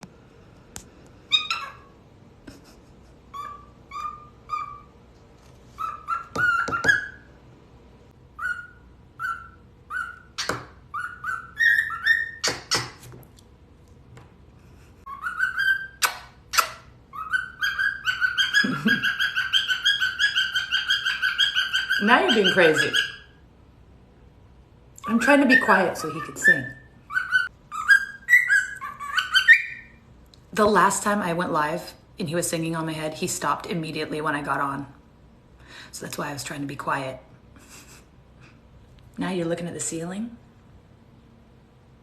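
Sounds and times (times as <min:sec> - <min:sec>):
cockatiel whistling: 0:03.3 - 0:04.9, 0:05.8 - 0:07.3, 0:08.4 - 0:12.9, 0:15.1 - 0:23.3, 0:25.4 - 0:30.0
sharp bird clicks: 0:10.4 - 0:10.7, 0:12.4 - 0:13.1, 0:16.0 - 0:16.8.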